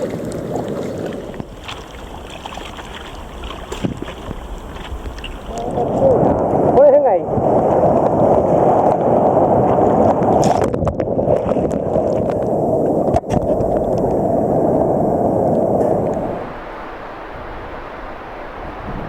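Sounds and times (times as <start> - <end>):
sea water rushing: 0.0 - 19.0
wind on microphone: 0.0 - 19.0.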